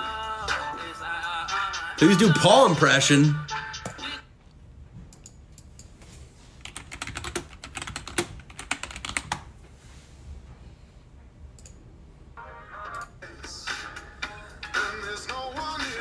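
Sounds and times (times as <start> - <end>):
music: 0.0 - 4.3, 12.4 - 16.0
typing on computer keyboard: 6.6 - 9.5.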